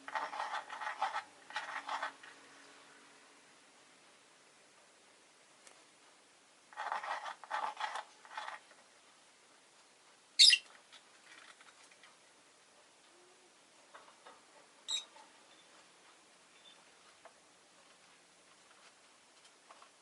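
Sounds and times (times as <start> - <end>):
rustling or scratching: 0.0 - 2.6, 6.7 - 9.0, 10.6 - 12.4, 13.8 - 20.0
lovebird chirping: 10.4 - 10.7, 14.8 - 15.7.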